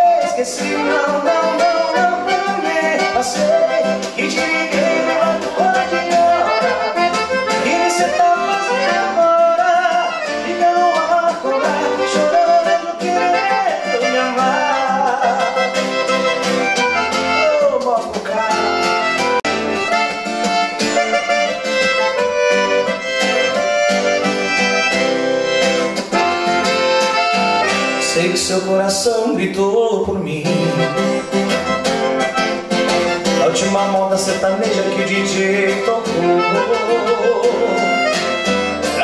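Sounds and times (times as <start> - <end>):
accordion melody: 0.0 - 29.0, 30.2 - 39.0
band backing: 0.0 - 39.0
singing: 33.4 - 38.0.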